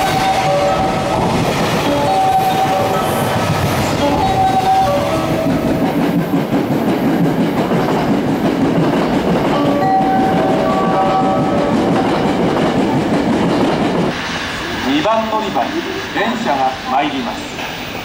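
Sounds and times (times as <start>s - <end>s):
high steady tones: 0.0s - 6.4s
freight train rumbling on rails: 0.0s - 18.0s.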